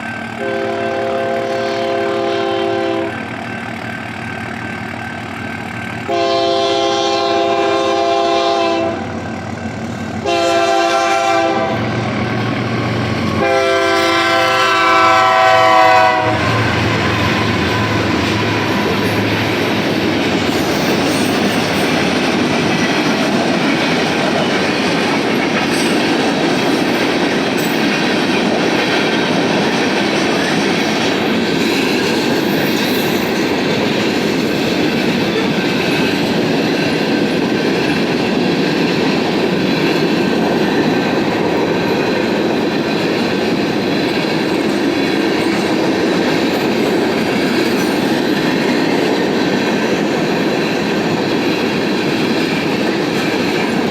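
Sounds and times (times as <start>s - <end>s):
train wheels running on rails: 0.0s - 53.9s.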